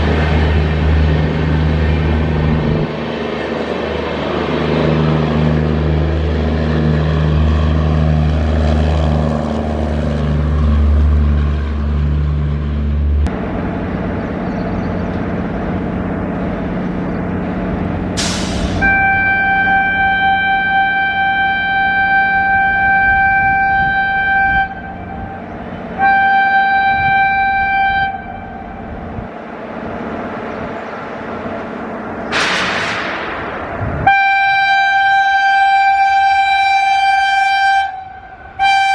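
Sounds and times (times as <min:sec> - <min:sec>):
train rumbling past: 0:00.0 - 0:38.9
locomotive horn blasts: 0:18.8 - 0:29.0, 0:34.0 - 0:38.9.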